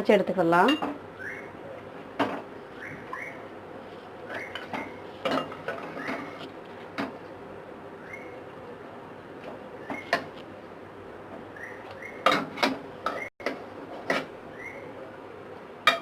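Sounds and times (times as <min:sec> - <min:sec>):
utensils clinking against pots: 0:00.5 - 0:01.0, 0:04.4 - 0:06.3.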